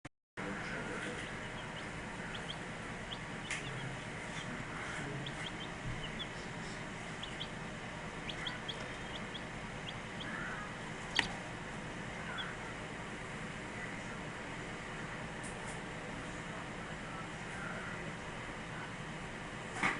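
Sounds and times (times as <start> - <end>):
chicks peeping: 0.4 - 13.7.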